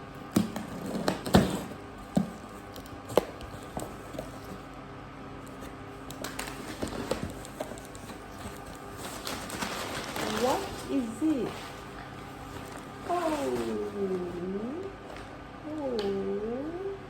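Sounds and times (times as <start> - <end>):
paper or plastic rustling: 5.5 - 14.3.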